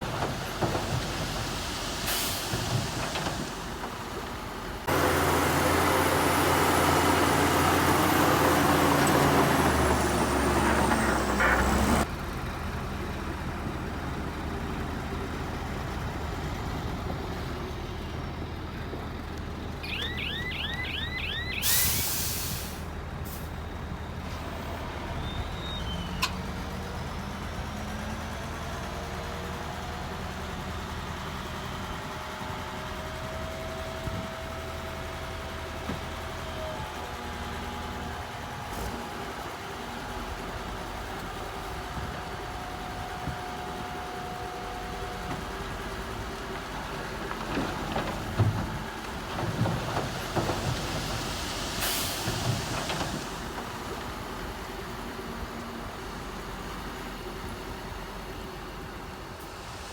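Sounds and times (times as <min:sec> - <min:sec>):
heavy diesel engines running: 0:00.0 - 0:59.9
air hiss burst: 0:21.6 - 0:22.9.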